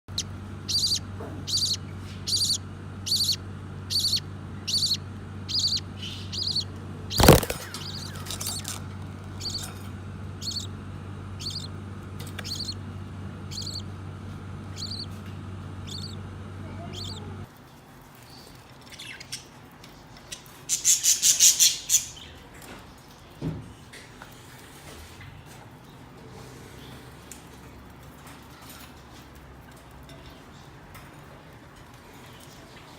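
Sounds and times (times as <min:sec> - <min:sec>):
parakeets calling: 0:00.1 - 0:17.5
steady low hum: 0:00.1 - 0:17.5.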